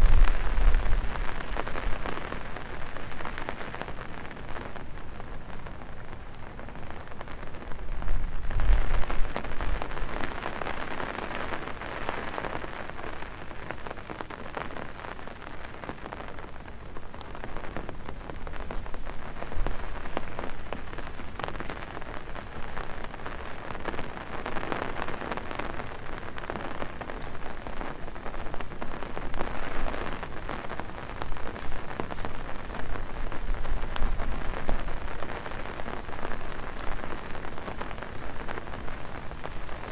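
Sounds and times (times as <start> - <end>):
wind gust rumble: 0.0 - 2.2
rain drumming on umbrella: 0.0 - 39.9.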